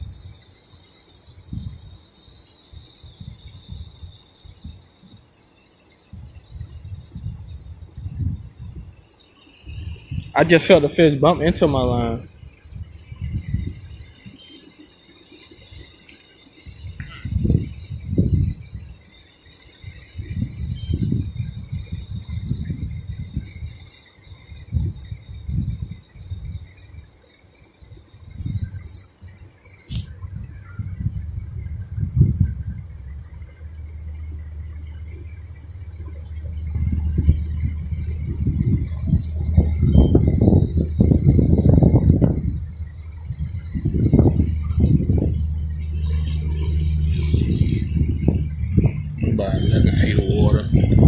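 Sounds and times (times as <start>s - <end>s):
insects chirping: 0.0s - 51.0s
low thumps and rumbles: 30.0s - 51.0s.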